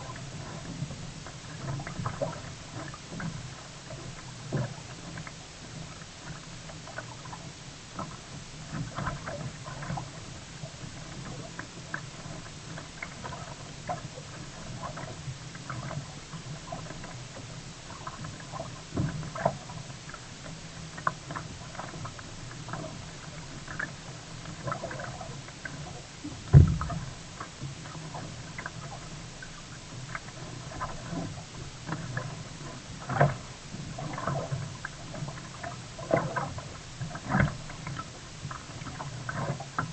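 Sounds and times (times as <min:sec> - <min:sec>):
paddle splashes: 0:00.0 - 0:39.9
water rumbling on hull: 0:00.0 - 0:39.9
loud thump: 0:26.5 - 0:27.0
soft knocks: 0:26.5 - 0:27.1.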